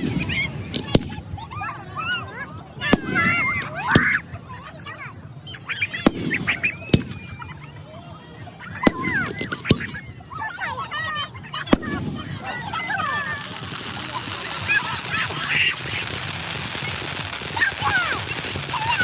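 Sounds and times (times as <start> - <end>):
fireworks exploding: 0.0 - 1.6, 2.8 - 4.5, 5.9 - 7.6, 8.7 - 10.2, 11.4 - 19.0.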